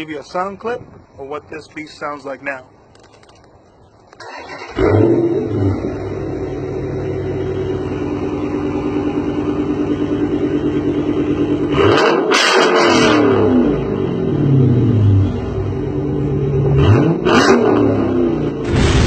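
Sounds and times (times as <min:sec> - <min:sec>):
car engine revving: 0:04.3 - 0:19.0
car engine rumbling idle: 0:05.4 - 0:11.8.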